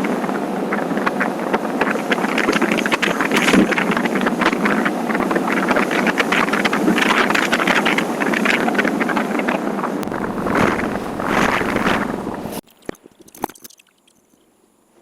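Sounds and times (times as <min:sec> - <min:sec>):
wind buffeting microphone: 0:00.0 - 0:12.6
motorcycle engine running: 0:10.0 - 0:12.6
road noise: 0:10.0 - 0:12.6.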